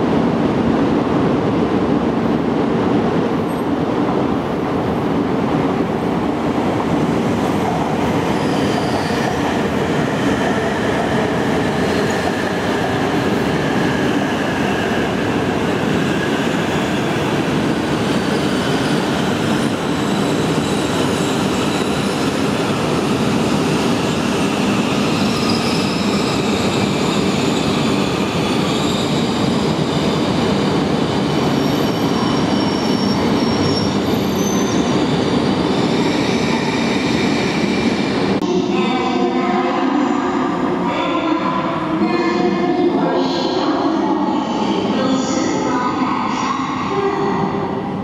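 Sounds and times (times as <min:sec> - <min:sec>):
high-pitched wheel squeals: 0:31.6 - 0:34.9.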